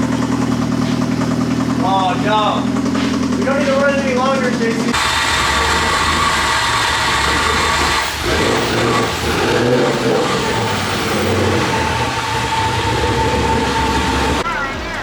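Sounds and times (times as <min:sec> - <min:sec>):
engine chain rattle: 0:00.0 - 0:14.4
rough car engine running: 0:00.0 - 0:15.0.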